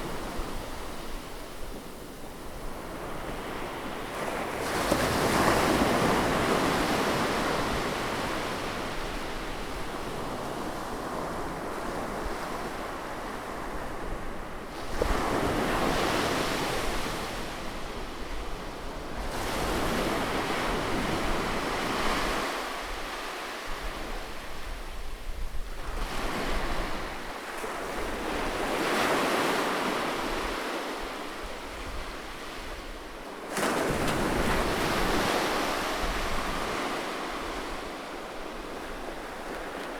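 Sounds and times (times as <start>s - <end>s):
sea waves breaking on shore: 26.0s - 39.9s.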